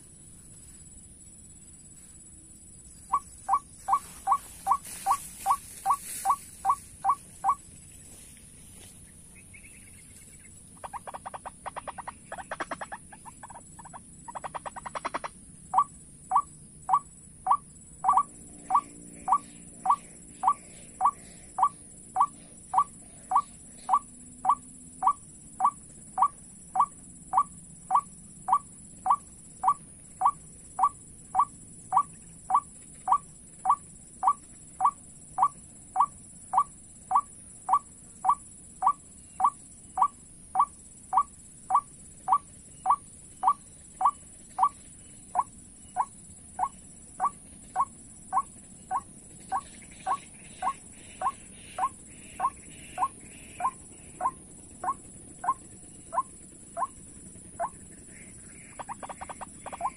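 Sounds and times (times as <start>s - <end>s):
steady high hiss: 0.0s - 13.2s
bird chattering: 3.0s - 7.6s, 9.4s - 59.9s
bird calling: 3.0s - 8.1s, 9.3s - 57.0s, 57.6s - 59.9s.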